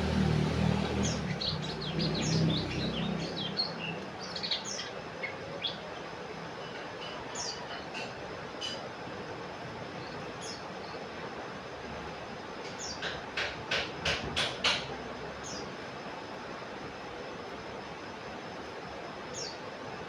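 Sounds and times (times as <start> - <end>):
low engine rumble: 0.0 - 4.4
bird chirping and twittering: 0.8 - 6.1, 7.0 - 8.8, 10.0 - 11.0, 19.3 - 19.6.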